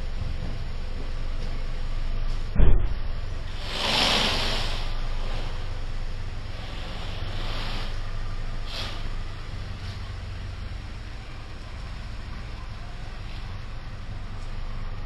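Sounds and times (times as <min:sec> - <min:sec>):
car engine idling: 0:00.0 - 0:15.0
brief rush of noise: 0:03.6 - 0:05.4.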